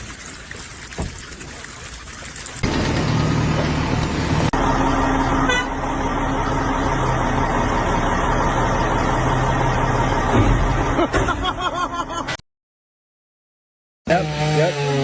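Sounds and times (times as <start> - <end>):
engine running: 0.0 - 11.2.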